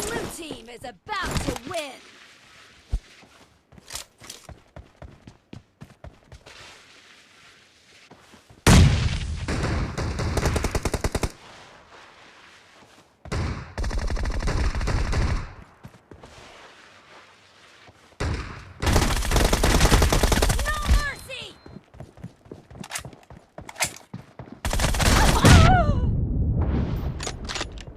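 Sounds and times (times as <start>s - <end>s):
video game automatic gunfire: 18.8s - 20.8s, 24.6s - 25.4s.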